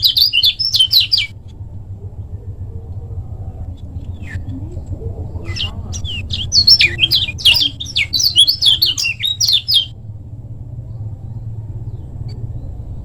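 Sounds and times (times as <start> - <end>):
bird chattering song: 0.0 - 1.4, 3.5 - 10.0
steady low hum: 0.0 - 13.0.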